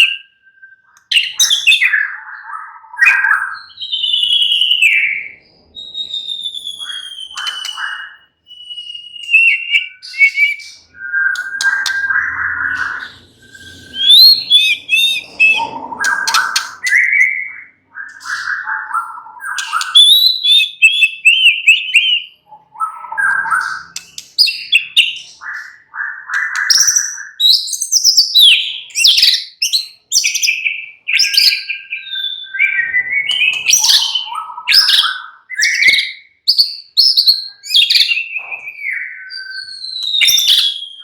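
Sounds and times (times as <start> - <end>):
songbird singing: 0.0 - 41.0.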